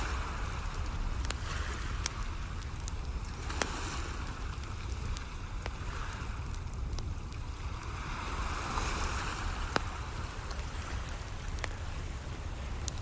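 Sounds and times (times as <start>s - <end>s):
wood fire crackling and popping: 0.0s - 13.0s
wave washing in: 7.5s - 13.0s.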